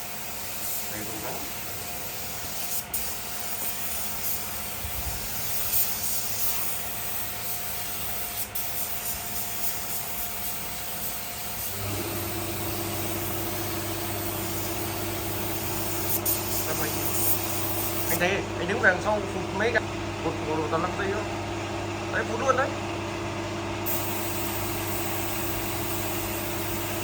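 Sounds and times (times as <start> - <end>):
spray gun hissing: 0.0 - 19.0, 23.9 - 27.0
machine hum: 11.6 - 26.8.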